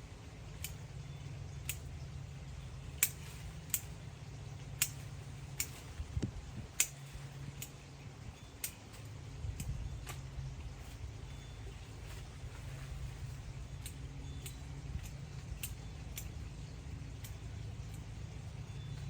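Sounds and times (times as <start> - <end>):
low steady hum: 0.0 - 19.0
pruning shears snipping: 0.5 - 7.9, 8.5 - 19.0.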